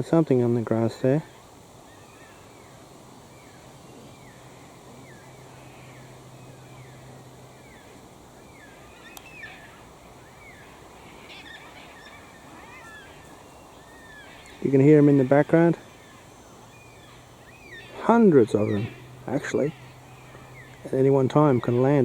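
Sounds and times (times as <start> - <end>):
low hum: 1.2 - 22.0
bird whistling calls: 1.8 - 22.0
sharp clicks: 9.1 - 9.4.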